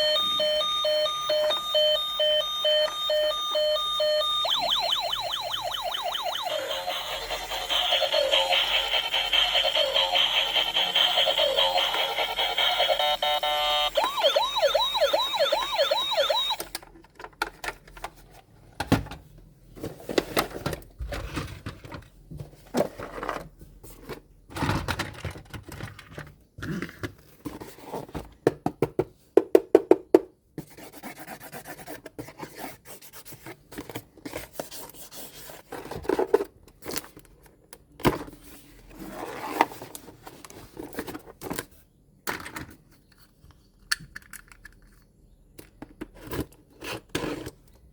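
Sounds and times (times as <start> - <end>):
toy siren warbling: 0.0 - 16.6
plastic toys and packaging rustling: 0.0 - 29.2, 32.2 - 47.9.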